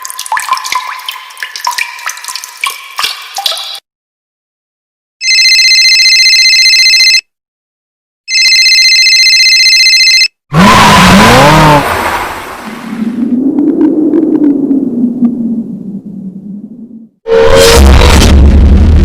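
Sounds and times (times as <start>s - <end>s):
telephone ringing: 5.2s - 7.2s, 8.3s - 10.3s.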